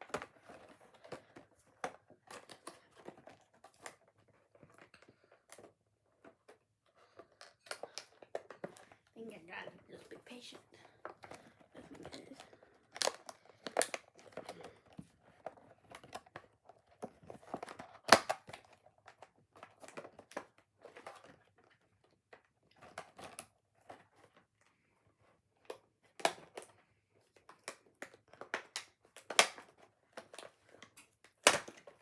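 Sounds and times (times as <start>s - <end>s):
packaging crinkling and clicking: 10.8s - 21.8s, 27.3s - 32.0s.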